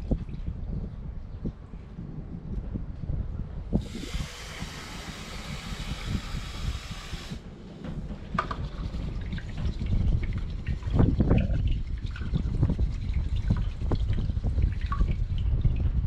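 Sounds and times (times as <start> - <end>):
water pouring into a pot: 3.8 - 7.4, 8.5 - 16.0
water dripping: 8.4 - 16.0.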